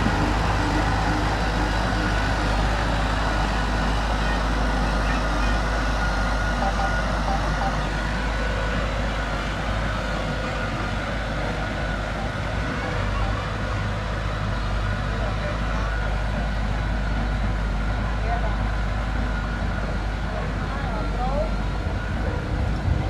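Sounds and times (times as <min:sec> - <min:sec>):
heavy machinery engine rumbling: 0:00.0 - 0:23.0.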